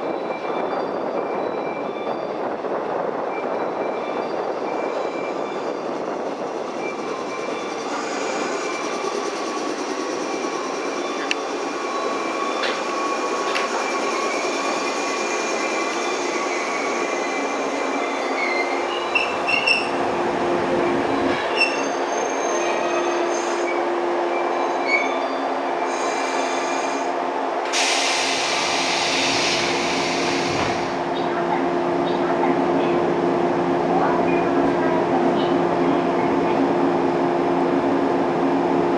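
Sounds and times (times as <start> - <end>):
electric train rumble and hum: 0.0 - 38.9
wheels squealing: 6.7 - 20.1, 21.3 - 23.8.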